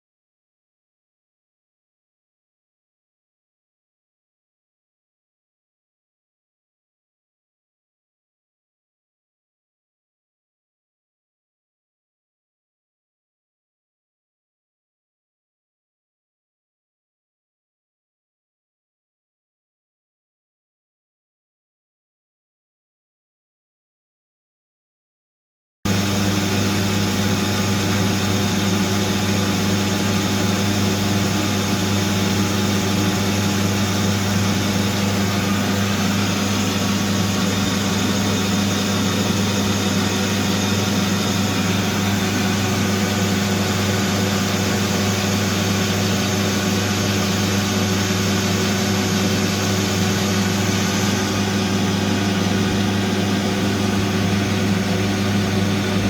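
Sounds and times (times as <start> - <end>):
metal lathe humming: 25.9 - 56.0.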